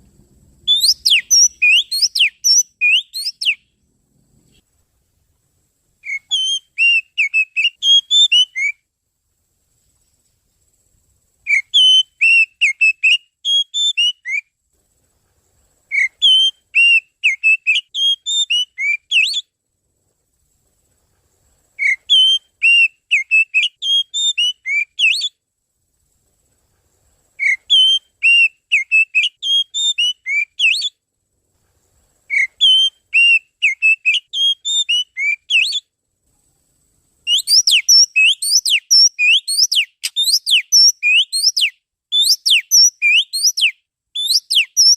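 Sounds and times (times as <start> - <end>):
bird whistled song: 0.6 - 3.8, 6.0 - 8.9, 11.4 - 14.6, 15.9 - 19.5, 21.8 - 25.4, 27.4 - 31.0, 32.3 - 35.9, 37.2 - 44.9.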